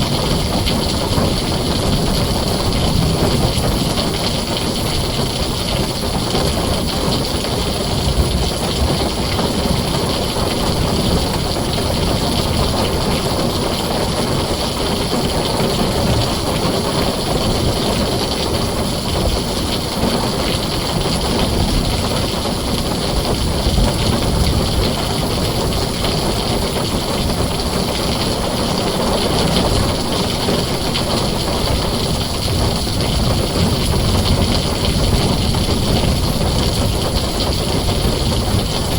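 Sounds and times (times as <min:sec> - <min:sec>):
heavy rain on a tin roof: 0:00.0 - 0:38.9
deep rumble: 0:29.3 - 0:38.9.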